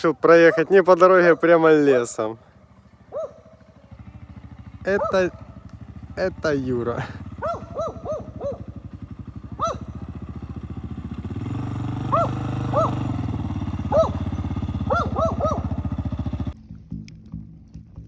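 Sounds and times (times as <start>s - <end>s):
vehicle engine at low revs: 0.0s - 18.0s
short yelping calls: 3.1s - 3.6s, 7.2s - 8.7s, 9.5s - 10.1s, 12.0s - 13.1s, 13.7s - 15.9s.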